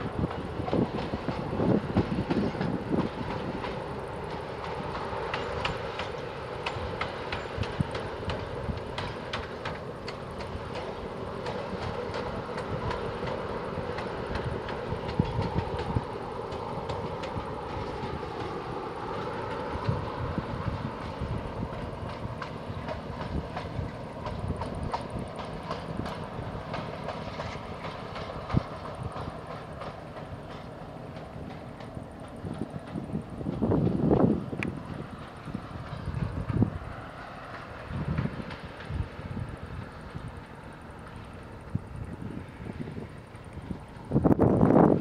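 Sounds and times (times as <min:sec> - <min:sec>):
diesel locomotive engine: 0:00.0 - 0:45.0
wheel clicks over rail joints: 0:00.2 - 0:18.6.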